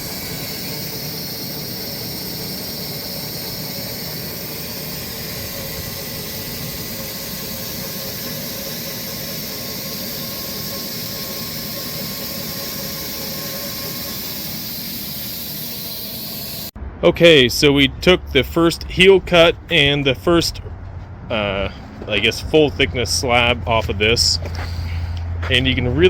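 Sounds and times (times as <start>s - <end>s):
sawmill cutting through log: 0.0s - 16.7s.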